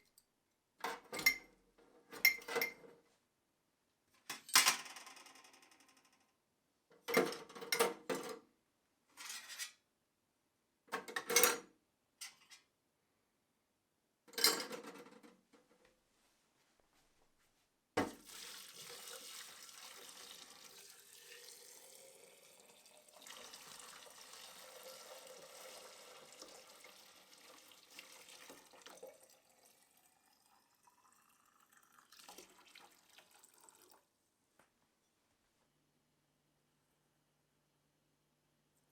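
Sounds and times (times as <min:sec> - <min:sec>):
tap water running and splashing: 0:18.0 - 0:34.1.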